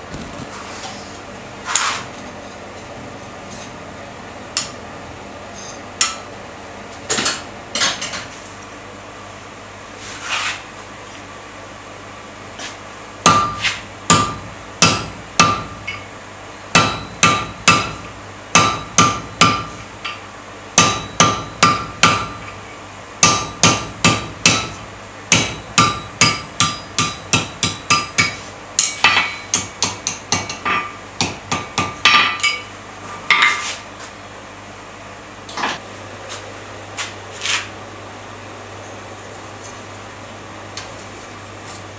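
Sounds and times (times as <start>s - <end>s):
hammer striking iron on anvil: 13.2s - 16.1s, 16.7s - 20.2s, 20.8s - 22.5s, 23.2s - 32.7s.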